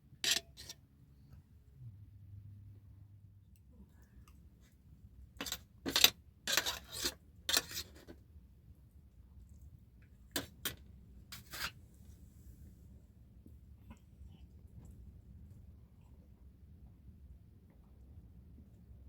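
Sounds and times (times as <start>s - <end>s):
short sharp scrapes: 11.3s - 11.8s.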